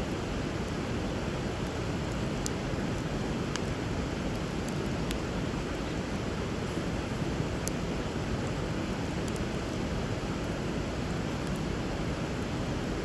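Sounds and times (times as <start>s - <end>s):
river flowing: 0.0s - 13.0s
wood fire popping: 6.1s - 13.0s.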